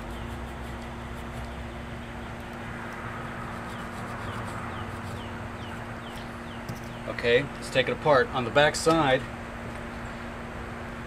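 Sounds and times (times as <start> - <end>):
low hum and hiss: 0.0 - 11.0
bird chirping: 3.7 - 7.2.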